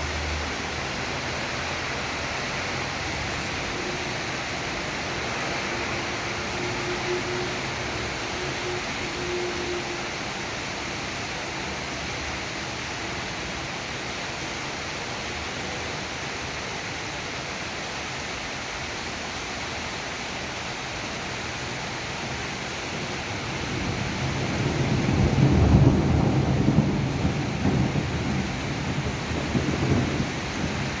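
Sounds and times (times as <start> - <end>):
steady rain: 0.0 - 31.0
thunder rumble: 23.6 - 31.0.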